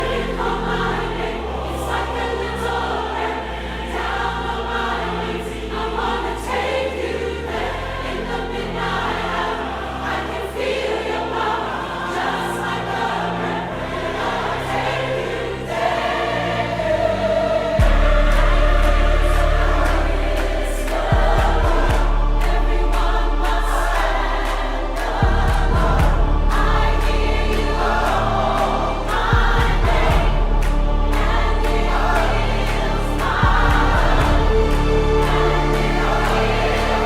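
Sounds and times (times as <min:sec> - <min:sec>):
choir singing sustained chords: 0:00.0 - 0:37.0
held bass notes: 0:13.7 - 0:37.0.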